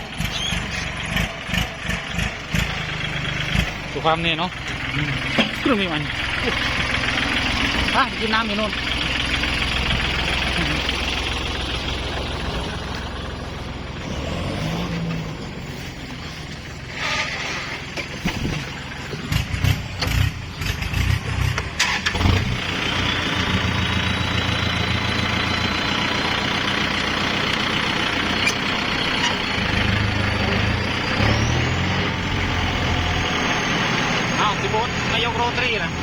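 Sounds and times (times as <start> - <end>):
engine knocks: 0.0 - 14.3, 15.0 - 22.6
tractor engine running: 0.0 - 36.0.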